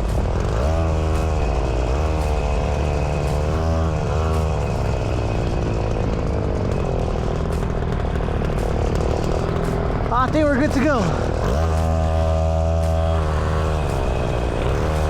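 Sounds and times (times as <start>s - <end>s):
truck diesel engine rumbling: 0.0s - 15.0s.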